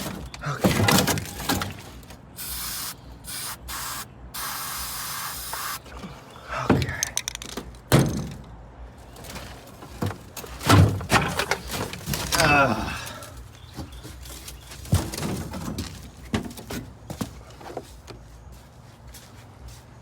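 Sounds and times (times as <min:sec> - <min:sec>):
knocks and thuds: 0:00.0 - 0:02.0, 0:06.7 - 0:08.5, 0:09.4 - 0:12.5, 0:14.8 - 0:17.4
spray hissing: 0:02.4 - 0:05.9.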